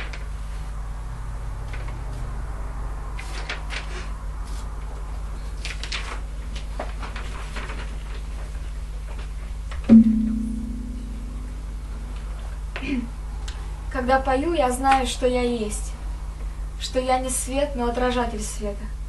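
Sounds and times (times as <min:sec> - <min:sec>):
low electrical hum: 0:03.0 - 0:19.0
small clicks and rustles: 0:05.6 - 0:09.4
loud low ringing note: 0:09.9 - 0:12.2.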